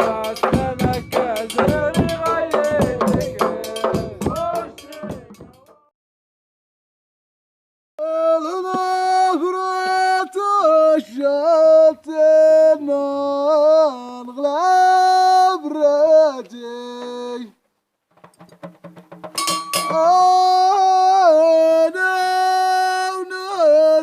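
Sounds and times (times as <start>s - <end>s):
person singing unaccompanied: 0.0s - 5.9s, 8.0s - 17.6s, 19.4s - 24.0s.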